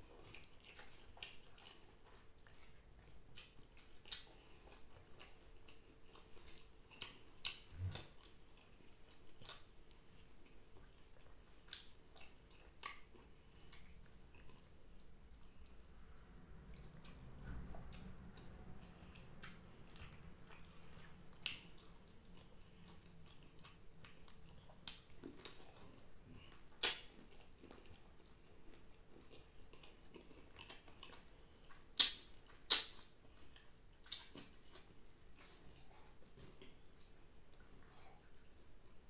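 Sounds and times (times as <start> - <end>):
wet chewing mouth sounds: 0.0 - 39.0
sharp wet mouth clicks: 26.8 - 27.1, 32.0 - 33.1.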